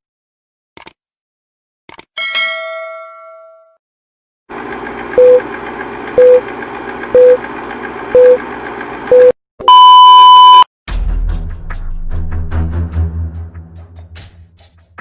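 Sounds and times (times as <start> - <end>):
long high beep: 9.1 - 10.7
short low beeps: 9.1 - 10.7
music: 10.9 - 15.0.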